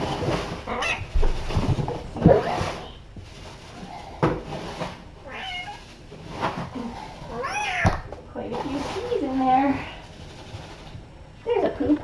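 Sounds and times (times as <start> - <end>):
cat meowing: 0.7 - 1.2, 5.2 - 5.9, 7.3 - 8.1.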